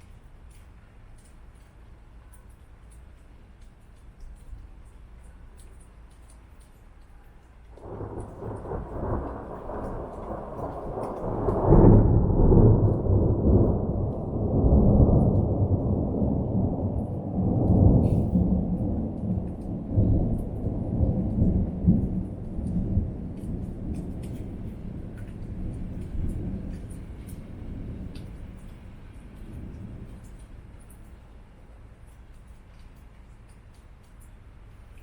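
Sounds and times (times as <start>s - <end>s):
rolling thunder: 7.8s - 31.3s.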